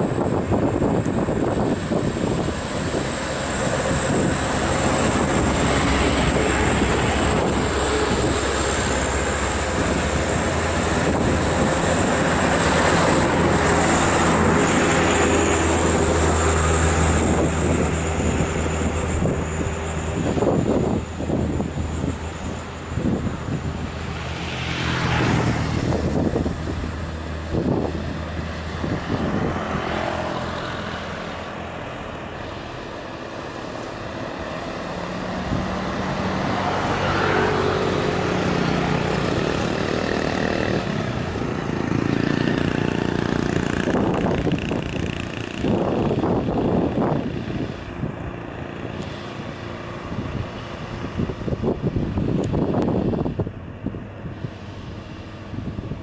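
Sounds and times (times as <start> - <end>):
truck diesel engines labouring: 0.0 - 56.0.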